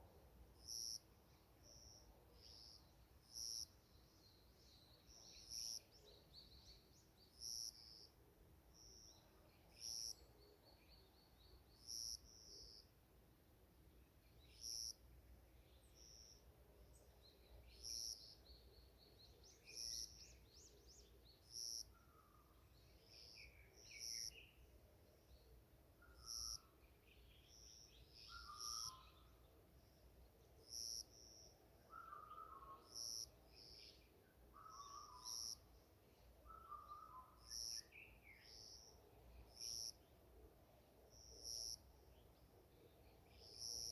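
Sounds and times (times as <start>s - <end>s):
bird trills and chirps: 27.3s - 29.3s.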